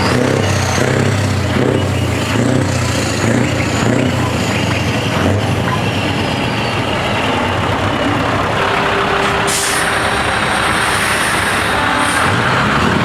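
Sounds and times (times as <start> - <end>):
heavy truck engine running: 0.0 - 13.0
air hissing: 9.5 - 12.3.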